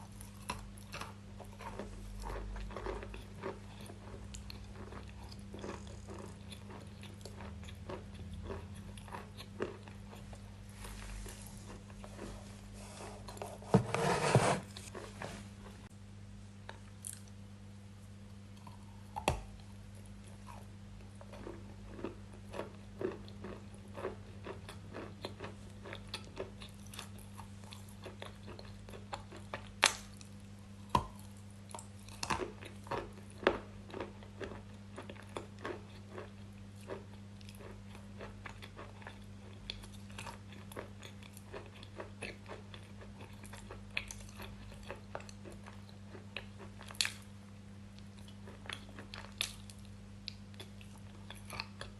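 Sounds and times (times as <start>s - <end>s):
crunchy biting and chewing: 0.0s - 12.4s
steady low hum: 0.0s - 51.9s.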